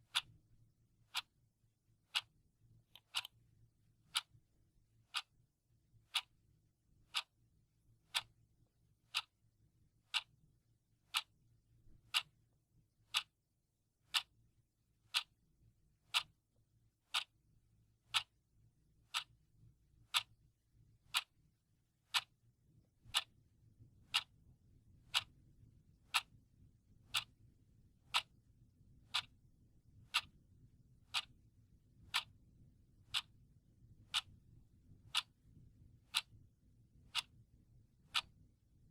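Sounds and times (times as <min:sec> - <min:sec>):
clock ticking: 0:00.0 - 0:00.3, 0:01.1 - 0:01.3, 0:02.1 - 0:02.3, 0:02.9 - 0:03.4, 0:04.1 - 0:04.4, 0:05.1 - 0:05.3, 0:06.1 - 0:06.3, 0:07.1 - 0:07.3, 0:08.1 - 0:08.3, 0:09.1 - 0:09.3, 0:10.1 - 0:10.3, 0:11.1 - 0:11.3, 0:12.1 - 0:12.4, 0:13.1 - 0:13.3, 0:14.1 - 0:14.3, 0:15.1 - 0:15.3, 0:16.1 - 0:16.4, 0:17.1 - 0:17.3, 0:18.1 - 0:18.3, 0:19.1 - 0:19.4, 0:20.1 - 0:20.4, 0:21.1 - 0:21.3, 0:22.1 - 0:22.3, 0:23.1 - 0:23.3, 0:24.1 - 0:24.3, 0:25.1 - 0:25.3, 0:26.1 - 0:26.3, 0:27.1 - 0:27.3, 0:28.1 - 0:28.4, 0:29.1 - 0:29.3, 0:31.1 - 0:31.4, 0:32.1 - 0:32.3, 0:34.1 - 0:34.4, 0:35.1 - 0:35.3, 0:36.1 - 0:36.4, 0:37.1 - 0:37.4, 0:38.1 - 0:38.3.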